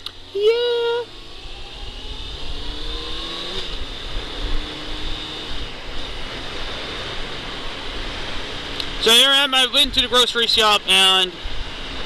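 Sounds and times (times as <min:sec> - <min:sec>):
motorcycle engine accelerating: 0:00.0 - 0:09.2
wind and road noise: 0:00.0 - 0:12.0.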